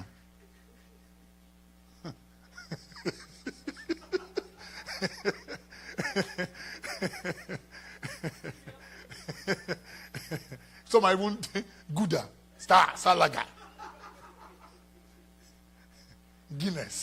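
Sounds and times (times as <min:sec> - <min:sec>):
electrical hum: 0:00.0 - 0:17.0
person laughing: 0:02.0 - 0:10.7.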